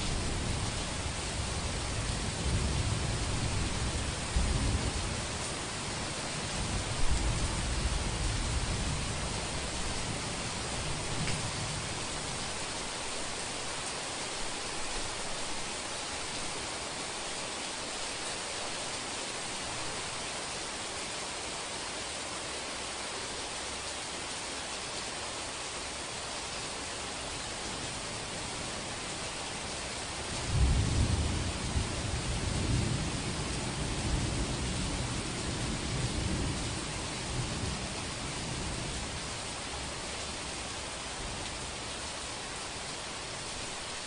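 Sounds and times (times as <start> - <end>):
steady rain hiss: 0.0 - 44.0
low thunder rumble: 30.4 - 36.8.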